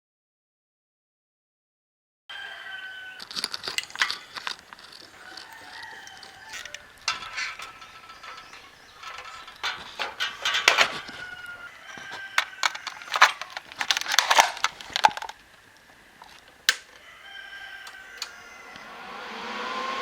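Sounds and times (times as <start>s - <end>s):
chickens calling: 2.3s - 19.4s
sharp clicks and knocks: 3.2s - 17.0s.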